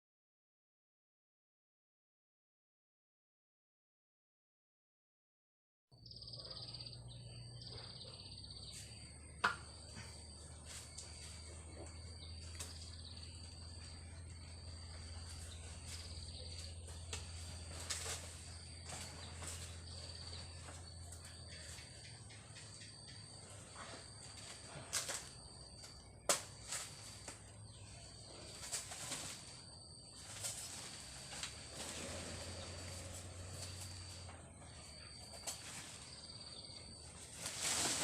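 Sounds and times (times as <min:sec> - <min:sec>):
bird chirps: 0:06.0 - 0:17.8
insects trilling: 0:06.0 - 0:38.0.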